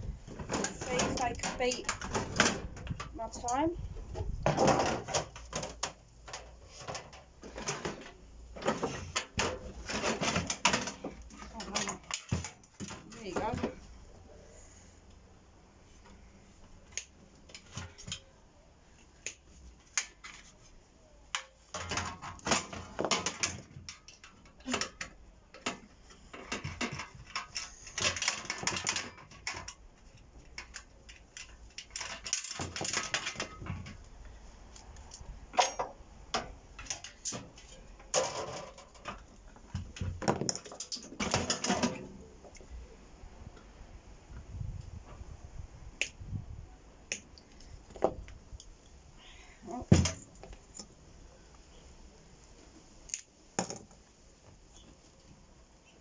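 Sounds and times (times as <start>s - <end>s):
metallic clatter of hand tools: 0.4s - 3.7s, 4.5s - 13.7s, 21.3s - 34.1s, 35.1s - 39.3s, 39.9s - 42.2s.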